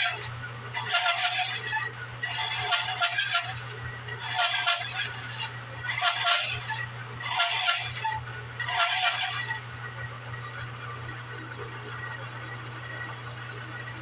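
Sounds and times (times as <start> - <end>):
bandsaw blade rasping through wood: 0.0 - 9.9
bandsaw humming: 0.0 - 10.1.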